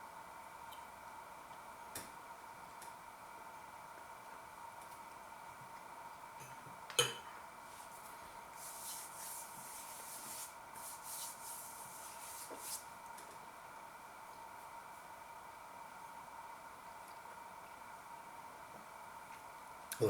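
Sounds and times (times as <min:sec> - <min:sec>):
faint steady whine: 0:00.0 - 0:20.0
cutlery clinking on a plate: 0:06.4 - 0:07.3.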